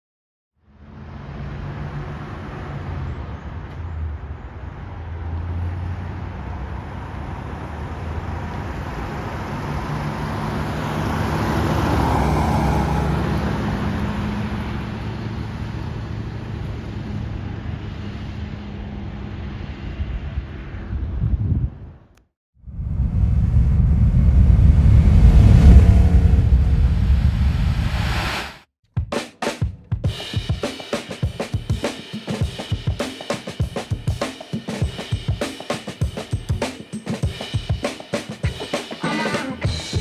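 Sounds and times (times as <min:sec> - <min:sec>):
car engine driving by: 0:00.9 - 0:17.2, 0:22.7 - 0:28.6.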